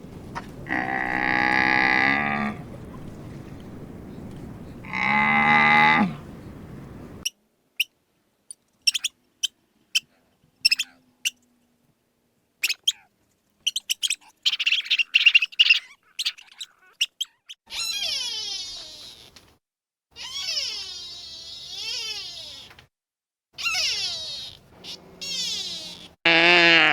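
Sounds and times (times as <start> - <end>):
cow mooing: 0.6 - 2.8, 4.8 - 7.0, 26.2 - 26.9
small bird chirping: 8.8 - 11.4, 12.6 - 19.4, 23.6 - 26.2.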